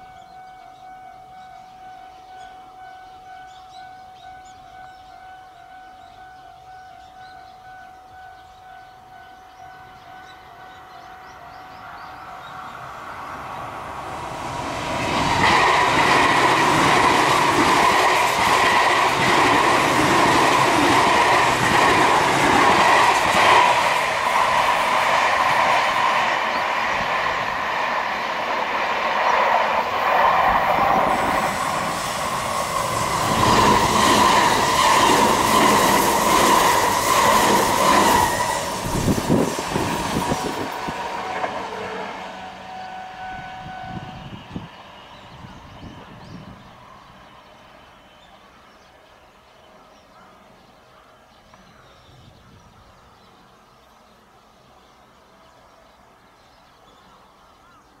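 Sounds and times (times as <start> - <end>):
high-pitched wheel squeal: 31.5 - 46.5.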